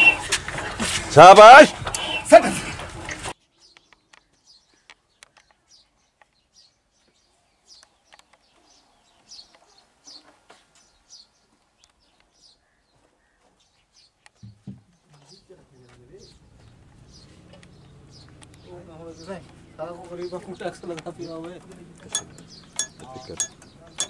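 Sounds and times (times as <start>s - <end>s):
small birds chirping: 0.0s - 0.4s, 1.9s - 2.4s, 3.0s - 24.0s.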